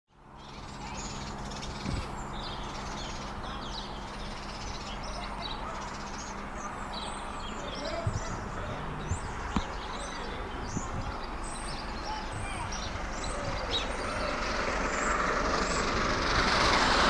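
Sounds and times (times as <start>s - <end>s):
birds calling and chirping: 0.2s - 17.0s
steady low hum: 7.3s - 16.5s
low thump: 8.0s - 10.0s.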